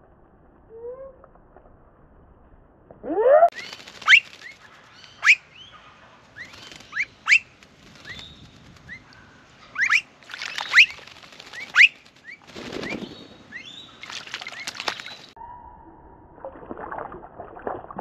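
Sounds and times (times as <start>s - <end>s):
rising whistled bird calls: 3.2s - 5.8s, 6.4s - 9.1s, 9.7s - 11.0s, 11.6s - 16.2s
bird splashing and wing flapping: 3.5s - 5.4s, 6.2s - 15.4s, 16.5s - 18.0s.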